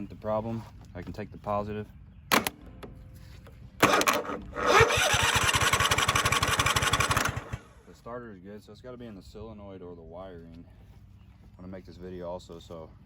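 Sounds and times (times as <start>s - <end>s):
jumper cable click: 2.3s - 3.0s, 3.8s - 7.6s
starter motor cranking engine: 3.8s - 7.9s.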